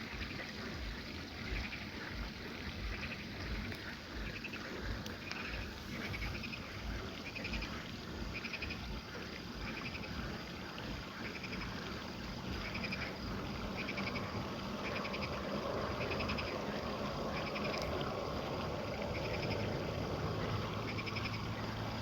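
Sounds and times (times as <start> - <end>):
low rumbling noise: 0.1 - 22.0
pulsed insect chirps: 2.8 - 22.0.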